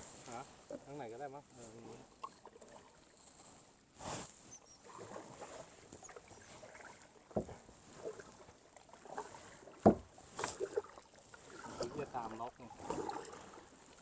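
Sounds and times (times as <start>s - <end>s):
paddle strokes splashing in water: 2.0s - 14.0s
paddle knocks: 7.3s - 8.1s, 9.6s - 10.8s.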